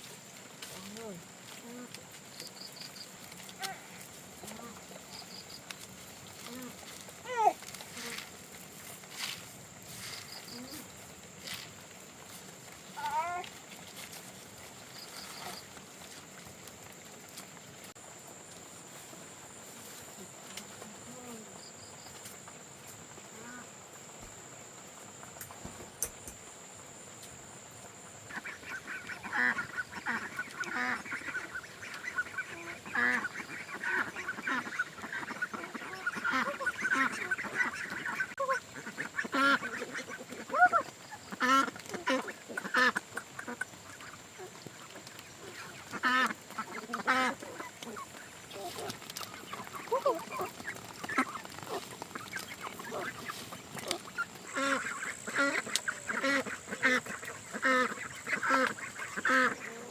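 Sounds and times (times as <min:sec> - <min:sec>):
ducks quacking: 0:28.2 - 0:59.9.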